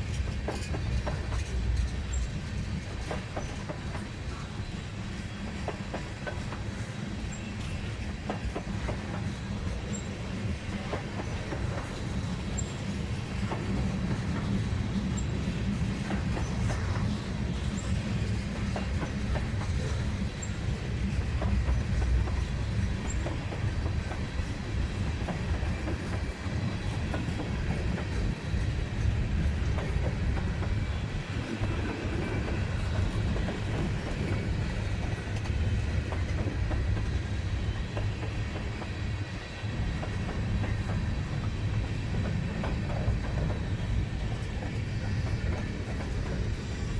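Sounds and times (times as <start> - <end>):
railcar wheels rumbling: 0.0 - 46.9
wheels clacking on rail joints: 0.0 - 46.9.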